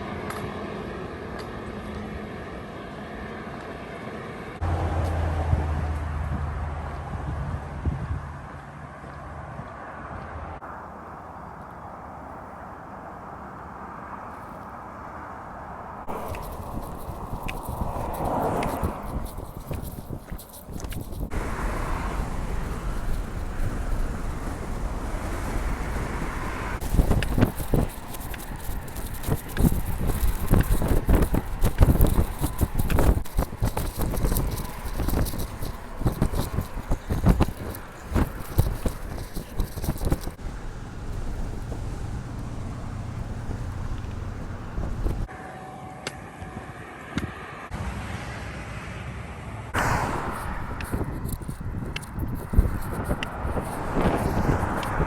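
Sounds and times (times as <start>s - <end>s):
road traffic: 0.0s - 55.0s
wind rushing over microphone: 6.2s - 10.6s, 14.1s - 45.3s, 49.7s - 55.0s.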